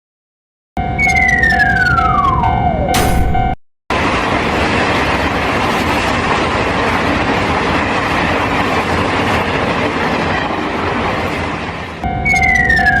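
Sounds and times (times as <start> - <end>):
train rumbling on rails: 2.6 - 13.0.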